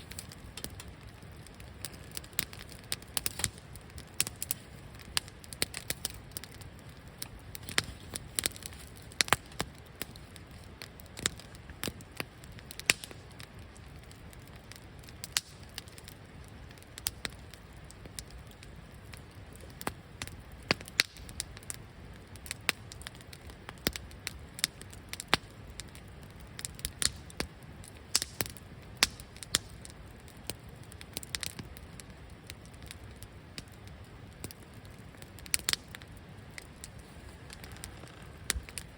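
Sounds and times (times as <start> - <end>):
campfire crackling and popping: 0.0 - 38.9
steady low rumble: 36.2 - 38.9.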